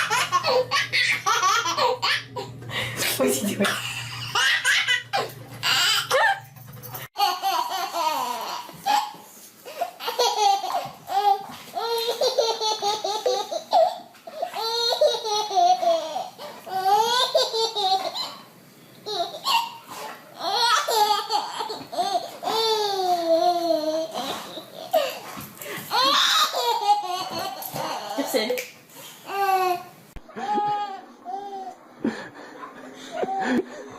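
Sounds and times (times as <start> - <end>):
young child giggling: 30.3 - 31.0.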